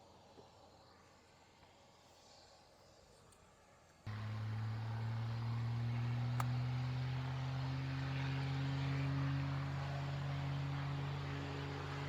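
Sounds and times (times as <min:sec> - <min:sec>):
low engine drone: 0:04.1 - 0:12.0
sharp click: 0:06.4 - 0:06.6.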